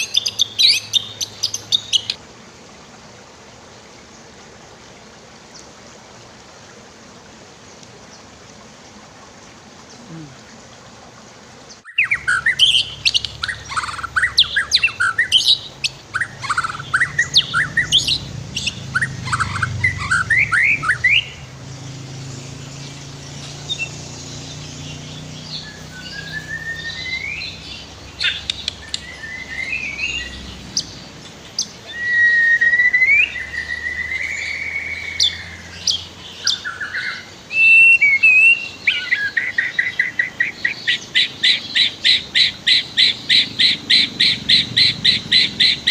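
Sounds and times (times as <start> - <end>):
songbird singing varied trills: 0.0 - 2.2, 11.6 - 45.9.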